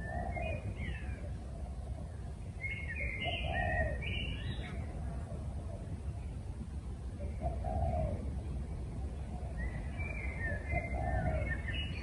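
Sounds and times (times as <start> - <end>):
whistled bird calls: 0.0 - 1.2, 2.6 - 4.9, 9.4 - 12.0.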